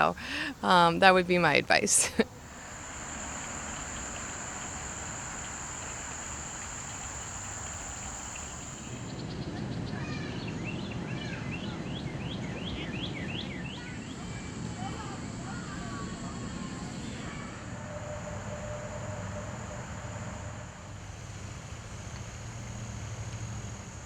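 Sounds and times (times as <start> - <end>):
insect drone: 0.0 - 9.2, 14.1 - 24.0
low rushing background: 2.1 - 9.1.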